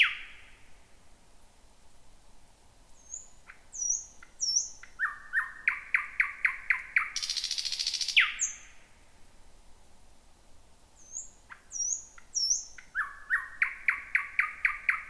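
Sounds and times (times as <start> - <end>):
nightingale singing: 0.0 - 0.6, 3.0 - 8.8, 11.0 - 15.0.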